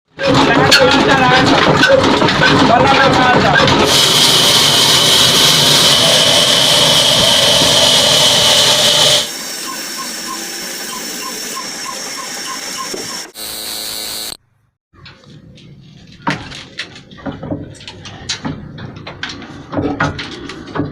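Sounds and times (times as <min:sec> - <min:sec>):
diesel engine and machinery running: 0:01.4 - 0:14.4
strong mechanical hiss: 0:03.9 - 0:12.2.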